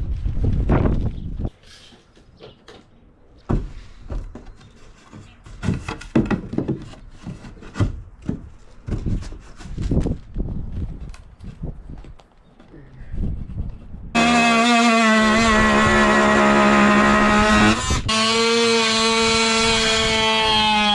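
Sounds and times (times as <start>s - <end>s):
wooden knocks and thuds: 2.4s - 9.4s.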